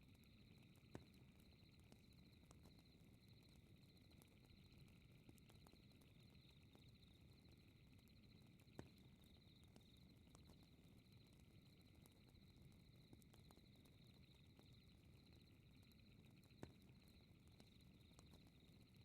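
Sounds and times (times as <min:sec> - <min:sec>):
fireplace crackling and popping: 0:00.6 - 0:18.8.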